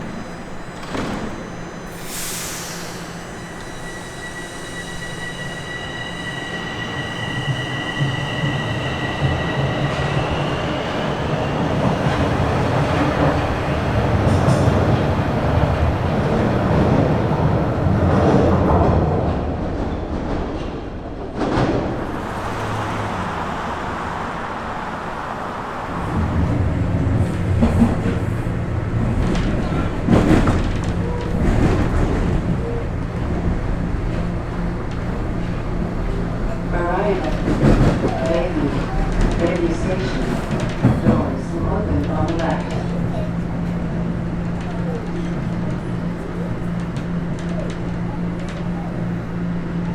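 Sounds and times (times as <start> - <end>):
high-pitched train tones: 0.0 - 15.0
train wheel and track rumble: 0.0 - 49.9.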